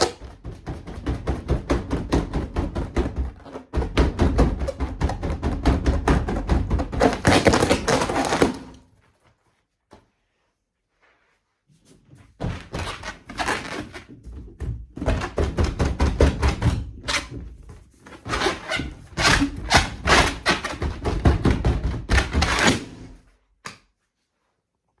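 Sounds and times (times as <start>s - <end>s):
hand thumping rubber balloon: 0.0s - 8.8s, 12.3s - 23.2s.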